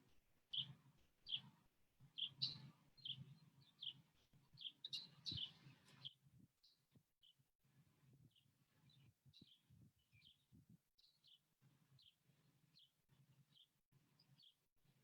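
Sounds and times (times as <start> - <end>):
bird chirping: 0.5 - 1.5, 2.1 - 4.0, 4.6 - 6.8.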